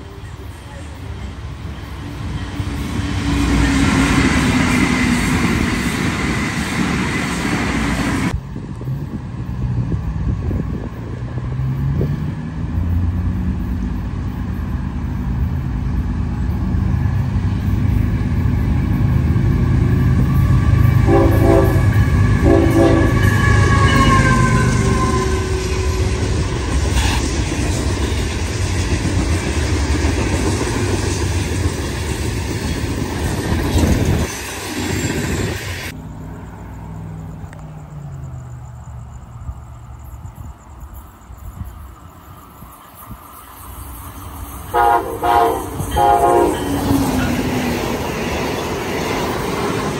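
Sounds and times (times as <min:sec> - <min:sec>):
diesel locomotive engine rumble: 0:00.0 - 0:49.9
passenger train rushing past: 0:00.0 - 0:49.9
train horn blasts: 0:20.2 - 0:27.2, 0:44.7 - 0:47.2.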